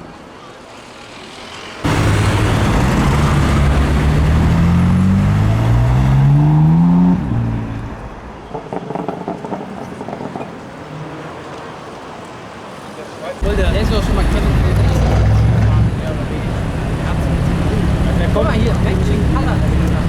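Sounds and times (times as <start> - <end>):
street noise: 0.0 - 20.0
car engine accelerating hard: 1.8 - 8.2, 13.4 - 20.0.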